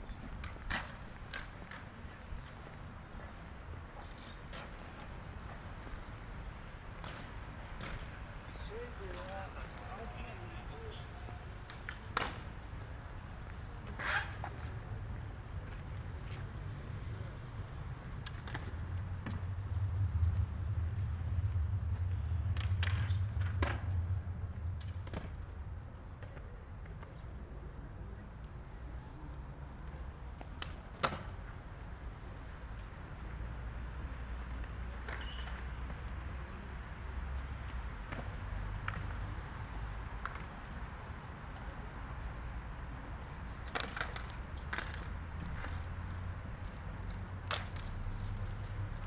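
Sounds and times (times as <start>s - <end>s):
vehicle rumble: 0.0s - 49.0s.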